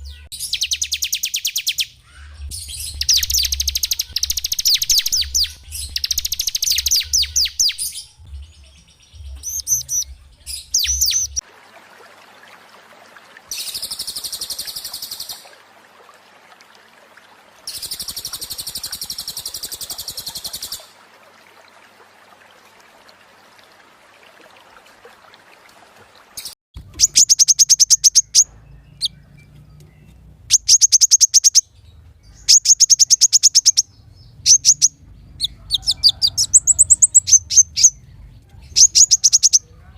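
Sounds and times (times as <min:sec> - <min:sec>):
buzzy rattling bird trills: 0:17.7 - 0:20.9.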